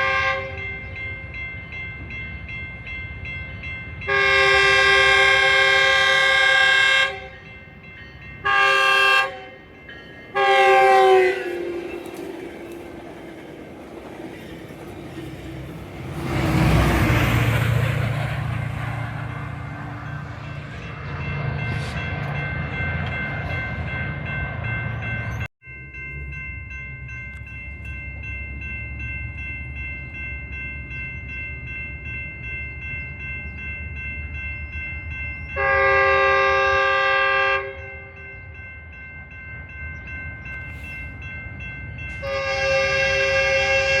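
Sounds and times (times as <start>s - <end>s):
locomotive chime horn: 0.0s - 13.0s, 35.4s - 38.7s, 42.0s - 44.0s
diesel train rumbling: 0.0s - 44.0s.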